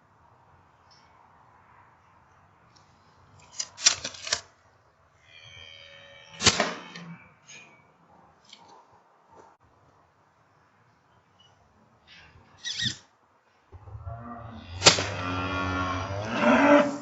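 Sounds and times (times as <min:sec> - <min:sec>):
sharp crack: 0:03.4 - 0:04.5, 0:06.4 - 0:07.1, 0:14.7 - 0:15.5
brief high squeak: 0:12.6 - 0:13.0.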